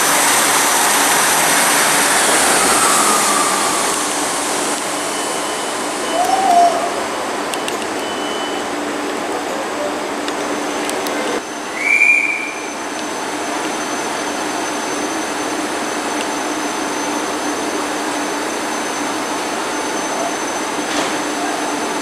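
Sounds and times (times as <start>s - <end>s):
train hum with high whine: 0.0s - 22.0s
high-pitched whistle: 0.3s - 7.0s, 11.5s - 12.9s.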